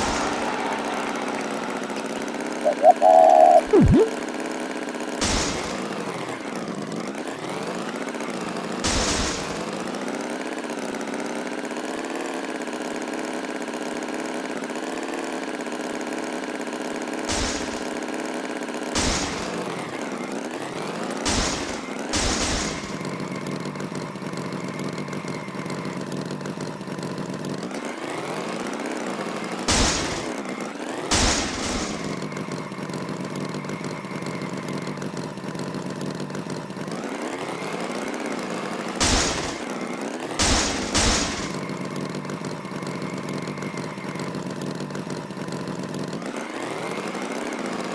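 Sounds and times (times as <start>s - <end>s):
tractor engine running: 0.0s - 4.1s, 40.3s - 43.6s
short loud noise bursts: 0.0s - 4.2s.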